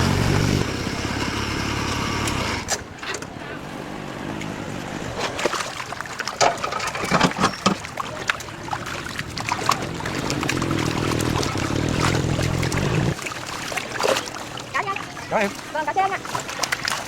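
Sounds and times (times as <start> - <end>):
water splashing and trickling: 4.6 - 17.0
low steady rumble: 7.9 - 14.0.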